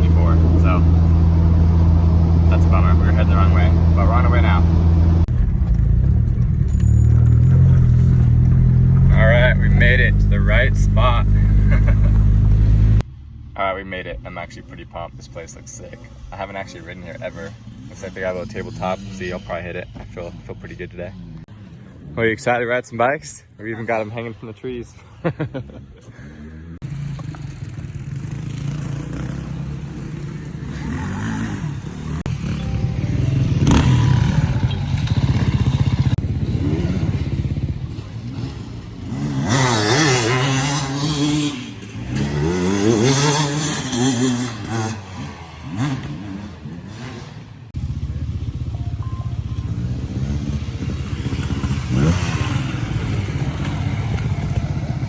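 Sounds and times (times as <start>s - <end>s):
dirt bike engine revving: 0.0s - 5.3s, 15.9s - 19.8s, 25.6s - 55.0s.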